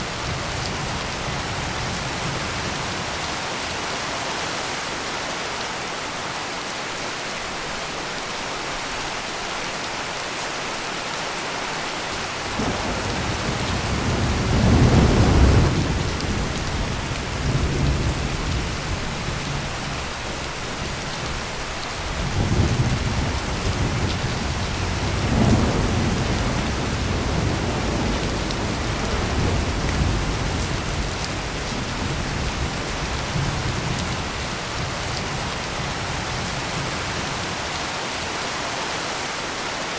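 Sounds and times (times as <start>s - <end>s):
heavy rain pouring: 0.0s - 39.9s
thunder rumbling: 12.4s - 19.9s, 22.1s - 37.5s.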